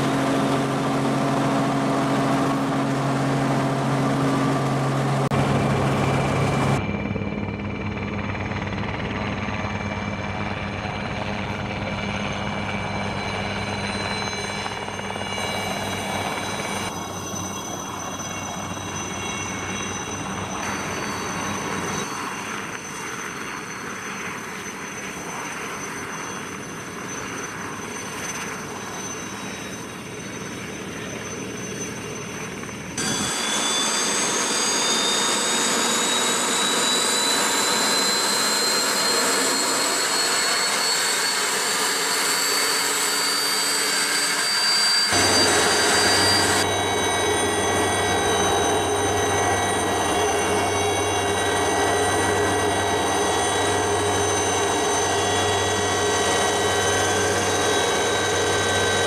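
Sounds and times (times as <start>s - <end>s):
helicopter engines running: 0.0s - 59.0s
high whine rising in pitch: 0.0s - 59.0s.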